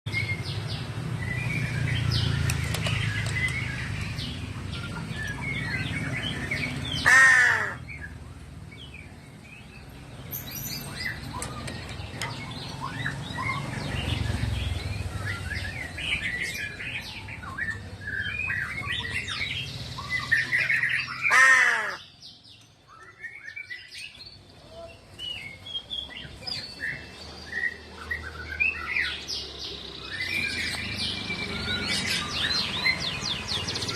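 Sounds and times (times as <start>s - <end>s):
small birds chirping: 0.1s - 33.9s
crow cawing: 7.0s - 7.8s, 21.2s - 22.1s.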